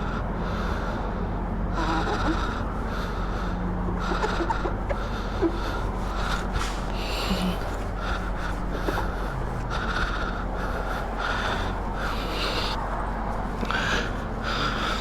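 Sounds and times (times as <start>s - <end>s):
steady low hum: 0.0s - 15.0s
rag wiping wet motorcycle: 3.9s - 9.9s.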